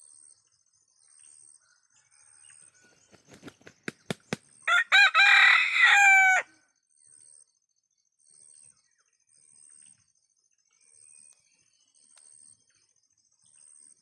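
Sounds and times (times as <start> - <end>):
faint insects chirring: 0.0 - 14.0
rooster flapping wings: 2.9 - 4.5
rooster crowing: 4.7 - 6.6.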